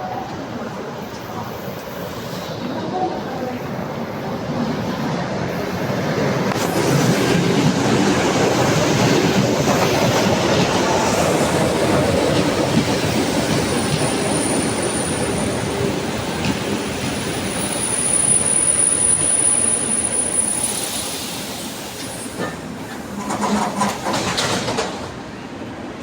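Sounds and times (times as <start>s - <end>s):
train wheels clattering over rail joints: 22.0s - 25.3s.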